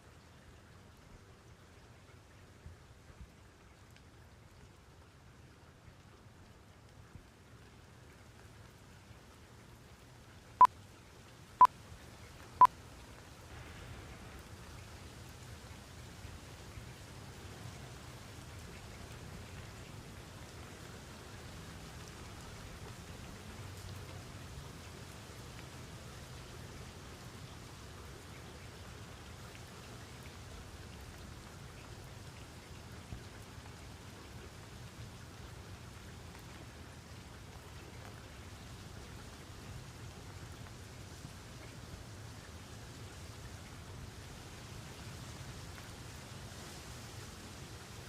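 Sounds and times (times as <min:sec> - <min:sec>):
faint rain noise: 0:00.0 - 0:48.0
rain hissing: 0:11.9 - 0:29.1.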